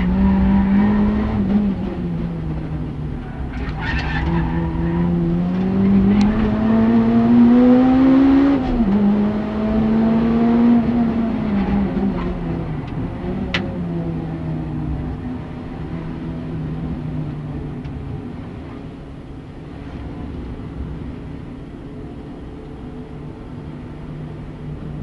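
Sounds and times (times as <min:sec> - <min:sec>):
car engine pulling hard: 0:00.0 - 0:25.0
tyre squeal: 0:03.2 - 0:05.2.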